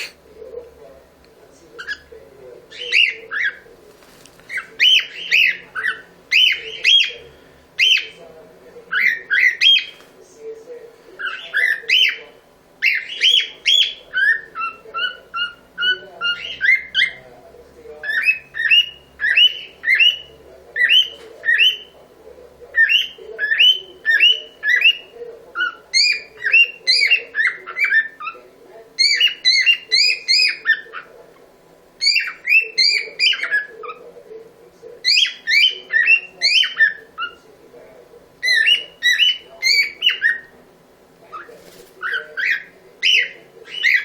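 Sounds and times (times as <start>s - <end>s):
cockatiel chirping and whistling: 32.0s - 33.7s, 35.0s - 37.4s.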